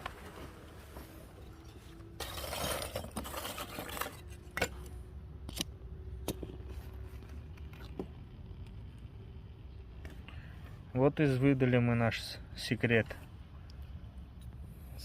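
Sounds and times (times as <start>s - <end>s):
charcoal pieces clinking: 2.1s - 4.9s.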